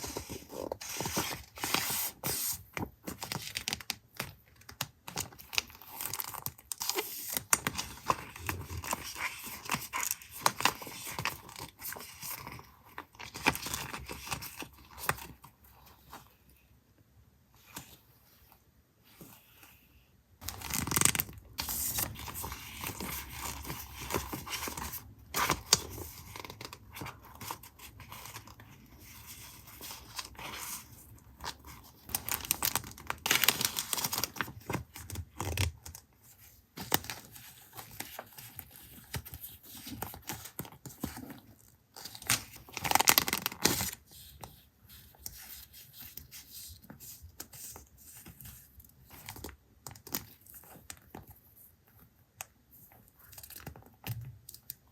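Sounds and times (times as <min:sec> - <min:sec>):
paper crinkling and rustling: 0:00.0 - 0:16.4, 0:20.4 - 0:52.1.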